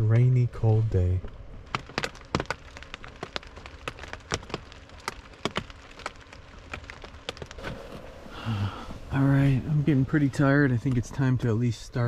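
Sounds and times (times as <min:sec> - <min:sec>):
rain pattering on tarp roof: 0:00.0 - 0:12.0
faint hum: 0:07.6 - 0:12.0.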